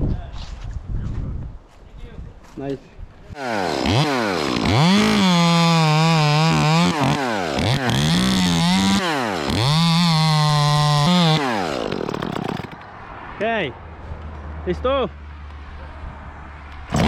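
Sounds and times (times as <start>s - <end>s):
chainsaw revving and cutting: 3.4s - 12.8s.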